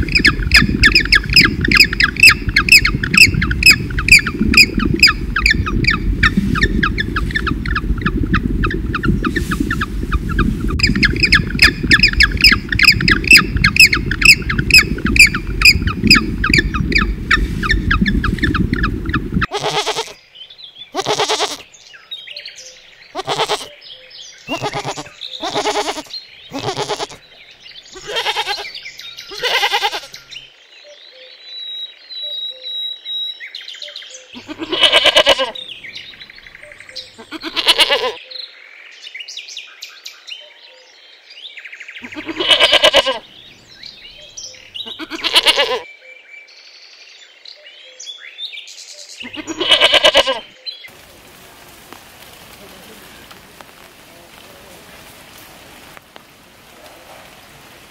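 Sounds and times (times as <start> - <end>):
small birds chirping: 0.0 - 45.8, 46.5 - 51.0
goats bleating: 19.5 - 20.2, 21.0 - 21.6, 23.2 - 23.7, 24.5 - 27.2, 28.0 - 28.7, 29.3 - 30.2, 34.4 - 35.6, 37.2 - 38.2, 42.0 - 43.2, 44.8 - 45.8, 49.2 - 50.5.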